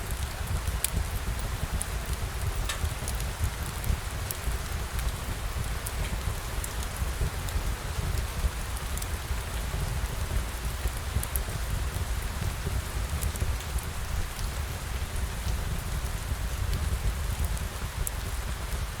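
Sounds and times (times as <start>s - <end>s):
steady rain falling: 0.0s - 19.0s
raindrop ticks: 0.1s - 14.6s.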